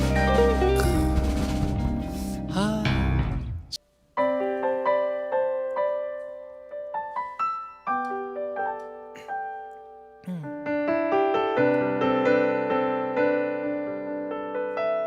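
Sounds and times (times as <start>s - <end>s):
band music with drums: 0.0s - 3.6s
slow solo piano chords: 4.2s - 15.0s.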